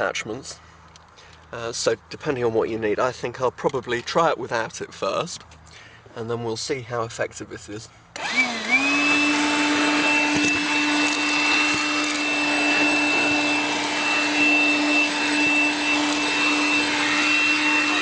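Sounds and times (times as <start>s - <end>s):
vacuum cleaner motor whining: 8.2s - 18.0s.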